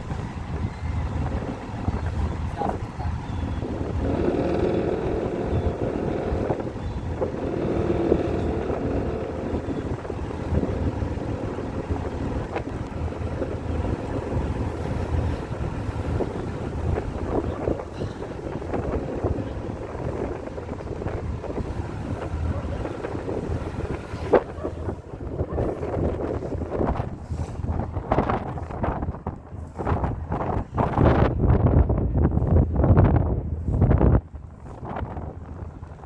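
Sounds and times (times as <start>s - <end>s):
steady low rumble: 0.0s - 29.4s
wind buffeting microphone: 0.0s - 36.0s.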